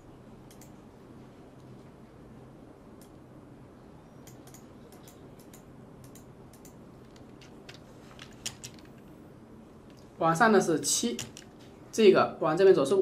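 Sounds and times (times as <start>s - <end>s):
low room hum: 0.0s - 13.0s
keyboard and mouse clicks: 0.5s - 0.8s, 4.2s - 9.0s, 11.1s - 11.5s.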